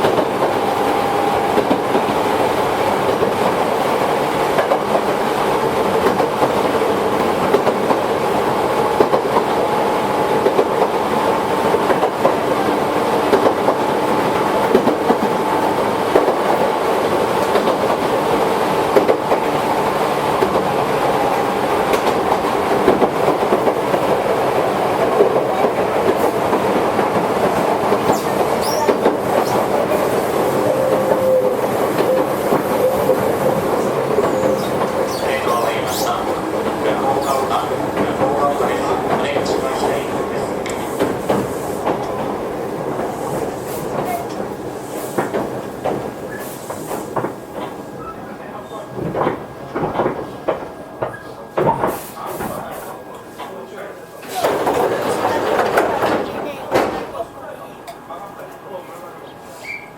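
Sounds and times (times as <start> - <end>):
electric train running: 0.0 - 47.8
faint wheel squeal: 28.1 - 29.0, 59.5 - 59.9.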